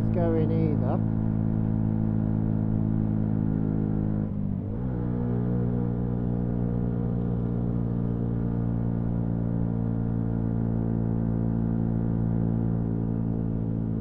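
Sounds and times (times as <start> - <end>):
motorcycle engine cruising: 0.0 - 14.0.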